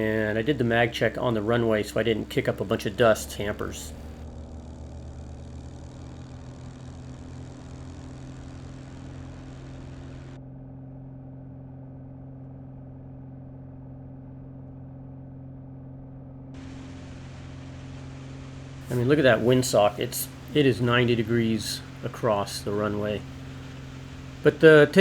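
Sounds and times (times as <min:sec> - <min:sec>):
steady hiss: 0:00.0 - 0:04.2, 0:16.6 - 0:25.0
airplane engine drone: 0:00.0 - 0:25.0.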